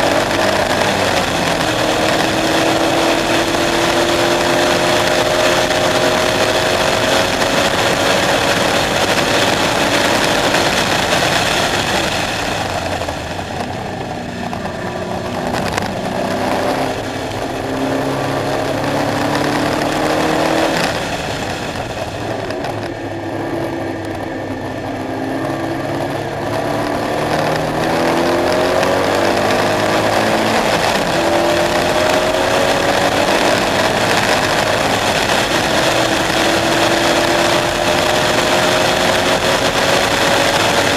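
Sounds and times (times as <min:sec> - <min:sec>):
sports car engine accelerating: 0:00.0 - 0:40.9.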